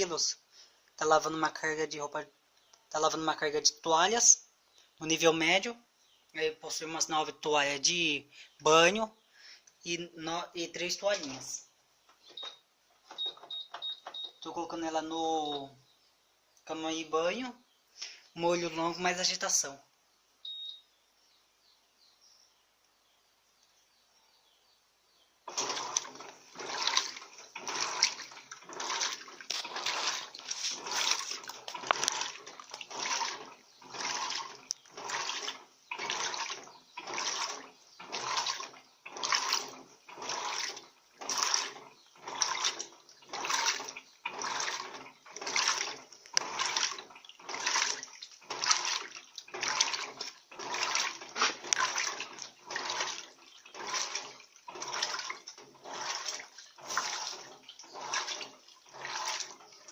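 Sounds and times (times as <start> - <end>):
washing machine sloshing water: 10.2 - 11.6, 12.2 - 15.7, 25.4 - 59.9.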